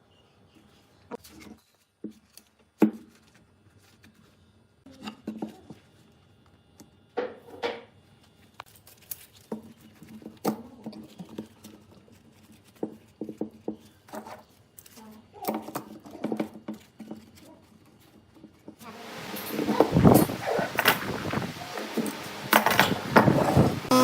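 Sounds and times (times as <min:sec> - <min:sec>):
objects knocking and tapping: 0:12.6 - 0:14.4, 0:18.2 - 0:23.9.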